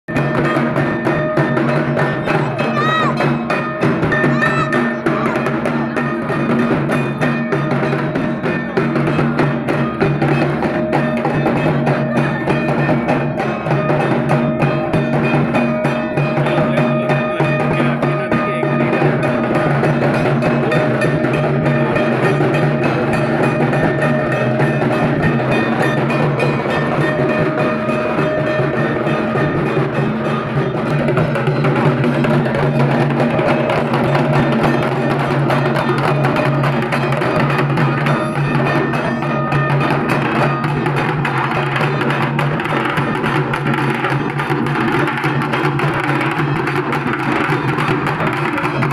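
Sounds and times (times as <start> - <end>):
barrel drum beaten with sticks: 0.1 - 48.9.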